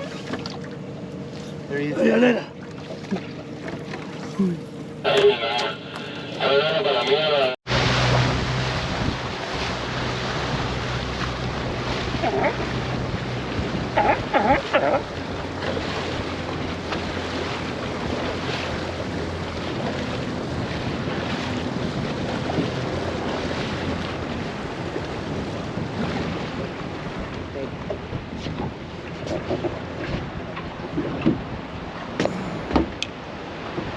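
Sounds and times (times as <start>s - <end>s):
boat motor hum: 0.0s - 33.9s
water rushing: 0.0s - 33.9s
wind buffeting microphone: 7.7s - 33.9s.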